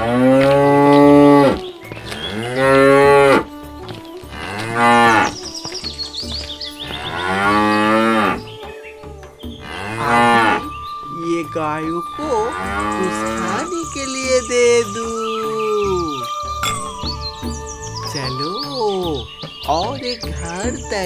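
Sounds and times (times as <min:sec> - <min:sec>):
cows mooing: 0:00.0 - 0:05.4, 0:06.9 - 0:08.4, 0:09.6 - 0:10.7, 0:12.5 - 0:13.7.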